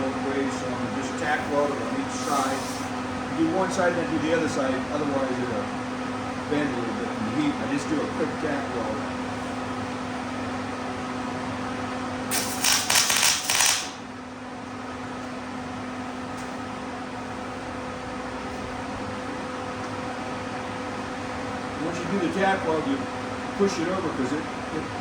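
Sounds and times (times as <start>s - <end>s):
steady fan-like hum: 0.0s - 25.0s
welding arc crackling: 12.3s - 14.0s.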